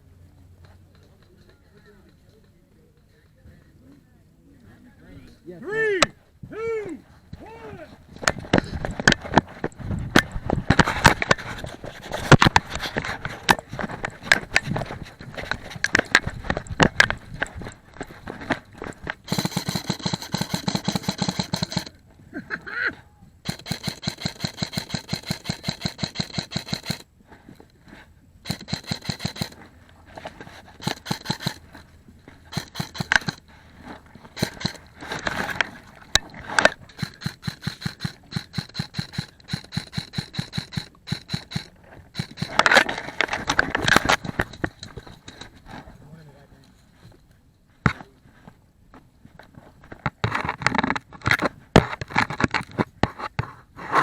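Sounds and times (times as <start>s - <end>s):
airsoft guns firing bursts: 19.1s - 22.0s, 23.4s - 27.1s, 28.4s - 29.6s, 30.8s - 31.8s, 32.5s - 33.5s, 34.3s - 42.8s.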